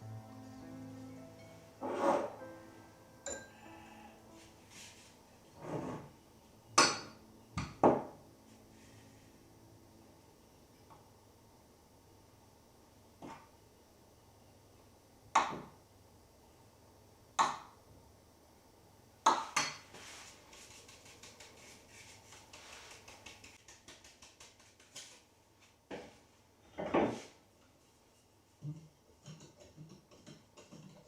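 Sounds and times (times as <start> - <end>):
dishes or utensils clanking: 3.3 - 3.7.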